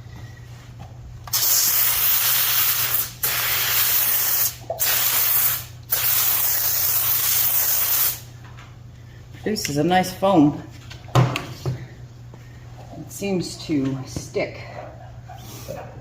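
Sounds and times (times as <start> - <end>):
foam sprayer hissing: 1.3 - 8.3.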